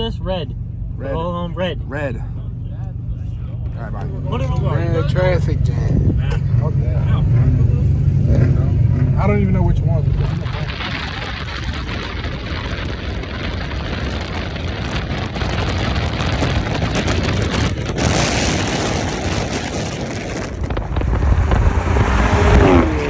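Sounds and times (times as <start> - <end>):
car engines running: 0.0 - 23.0
hissing traffic noise: 6.7 - 23.0.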